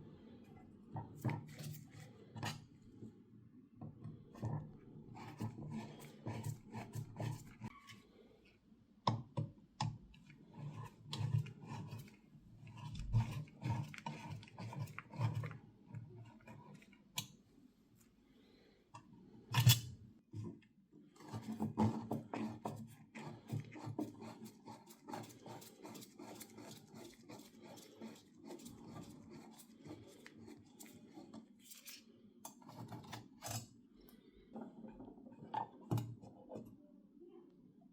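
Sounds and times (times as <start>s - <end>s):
clicks and scrapes of hand work: 9.8s - 17.4s, 19.0s - 20.6s, 21.2s - 36.7s.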